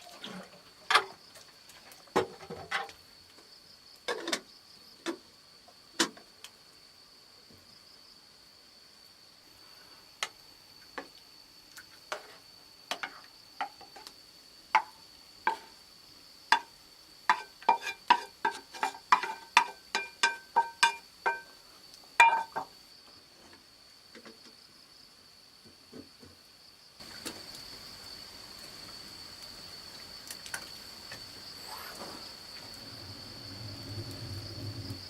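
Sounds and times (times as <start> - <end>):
high insect whine: 26.2 - 35.0.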